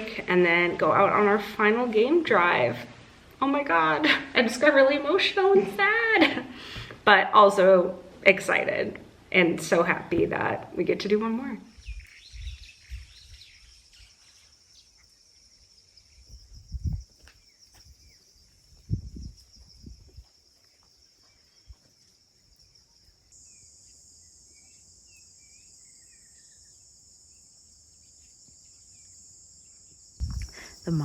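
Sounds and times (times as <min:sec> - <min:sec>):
insects trilling: 0:11.3 - 0:31.0
bird chirps: 0:11.7 - 0:26.8
low thumps: 0:30.2 - 0:31.0.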